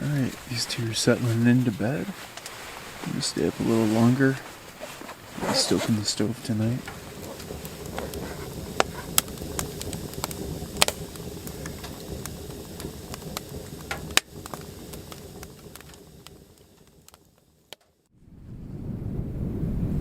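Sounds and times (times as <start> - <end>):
wood fire crackling in stove: 0.0 - 18.1.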